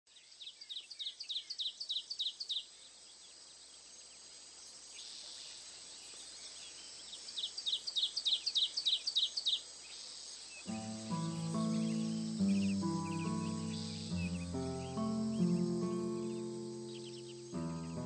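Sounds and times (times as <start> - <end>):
steady high hiss: 1.8 - 18.0
bird calling high notes: 10.7 - 18.0.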